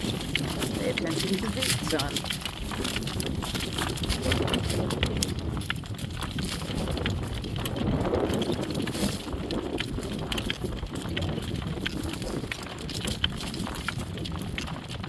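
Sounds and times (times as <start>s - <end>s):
horse hooves clip-clopping: 0.0s - 15.0s.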